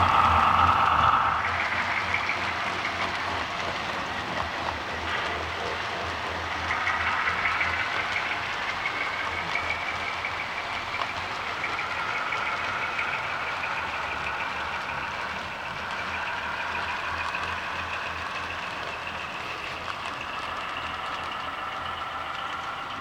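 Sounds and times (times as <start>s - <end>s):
low rumble: 0.0s - 4.4s
model train whine: 0.0s - 23.0s.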